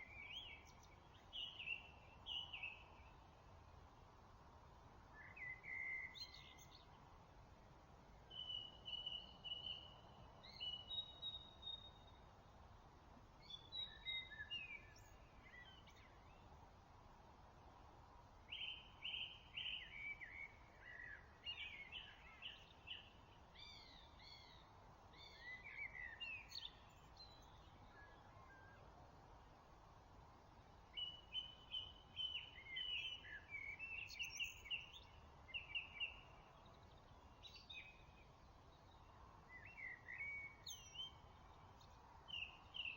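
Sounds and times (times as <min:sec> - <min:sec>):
songbirds singing: 0:00.0 - 0:42.9.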